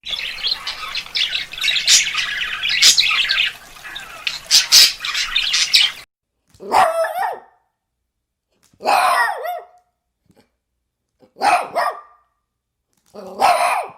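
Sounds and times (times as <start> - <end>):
dog yapping: 6.6 - 7.6, 8.8 - 9.8, 11.4 - 12.2, 13.2 - 13.9
dog barking: 6.6 - 7.7, 8.8 - 9.9, 11.2 - 12.3, 13.2 - 13.9.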